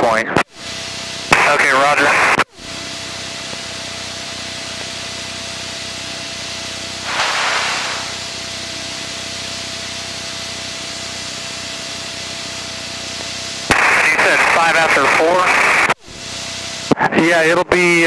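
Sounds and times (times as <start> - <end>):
burst of radio static: 0.0 - 0.5, 1.2 - 3.2, 7.0 - 9.1, 13.5 - 18.0
radio intercom hiss: 0.0 - 3.2, 7.0 - 9.1, 13.6 - 18.0
thin steady whine: 0.0 - 18.0.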